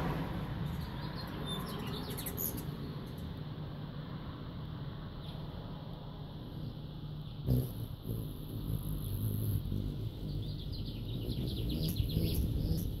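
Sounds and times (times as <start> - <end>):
bird chirping: 0.6 - 3.2, 7.2 - 13.0.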